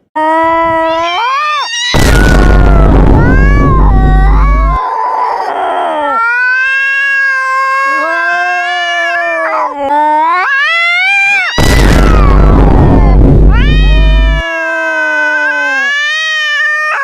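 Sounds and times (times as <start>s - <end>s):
pet howling: 0.7s - 17.0s.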